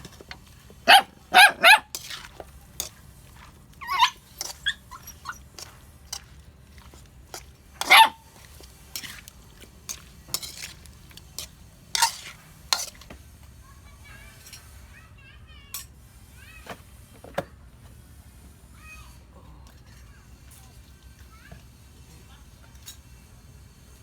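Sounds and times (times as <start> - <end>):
dog barking: 0.9 - 1.9, 3.8 - 4.8, 7.8 - 8.2.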